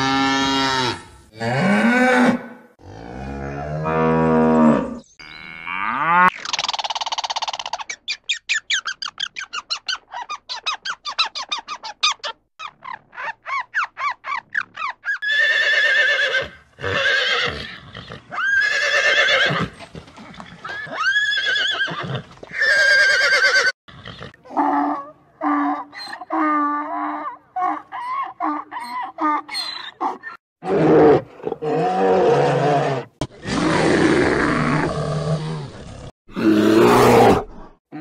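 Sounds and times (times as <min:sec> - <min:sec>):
horse neighing: 0:15.2 - 0:19.8, 0:20.6 - 0:24.4.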